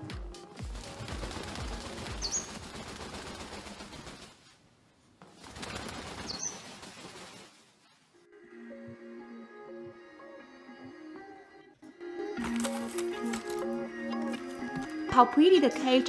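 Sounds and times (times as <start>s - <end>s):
parrot flapping wings: 0.0s - 8.2s, 12.4s - 13.7s.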